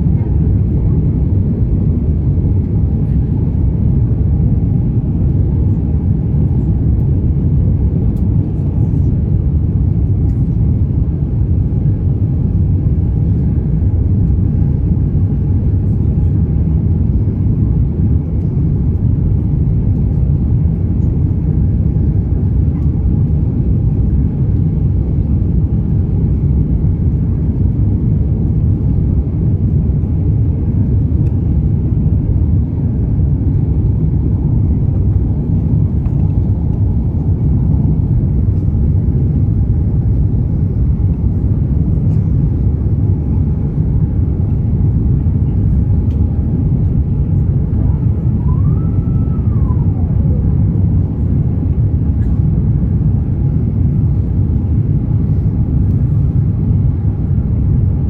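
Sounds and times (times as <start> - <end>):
airplane cabin rumble: 0.0 - 58.0
faint whine: 30.5 - 54.8.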